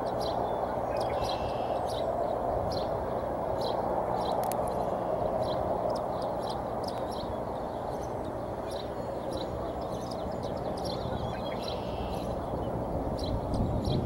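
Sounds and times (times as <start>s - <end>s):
steady rushing noise: 0.0s - 14.0s
high bird chirps: 3.6s - 14.0s.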